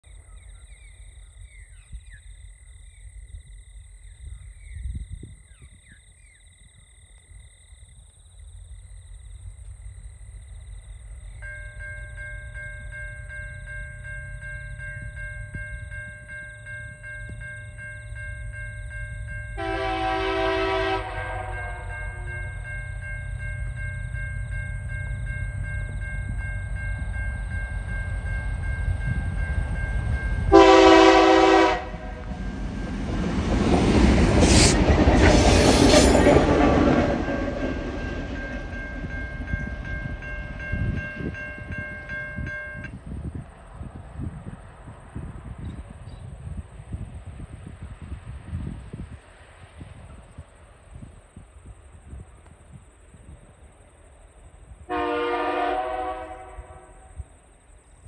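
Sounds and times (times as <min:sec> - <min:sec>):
level crossing warning bells: 0:09.0 - 0:34.4, 0:36.3 - 0:44.4
locomotive engine rumble: 0:09.0 - 0:46.9
locomotive horn blast: 0:19.6 - 0:22.4, 0:30.5 - 0:32.4, 0:54.9 - 0:57.1.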